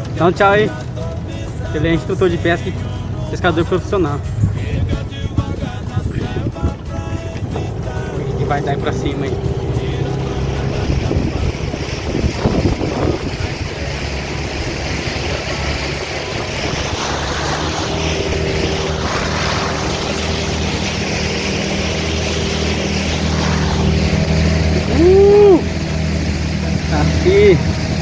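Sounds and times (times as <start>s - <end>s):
motorboat engine running: 0.0s - 28.0s
water rushing past: 0.0s - 28.0s
wind rushing: 4.2s - 26.5s.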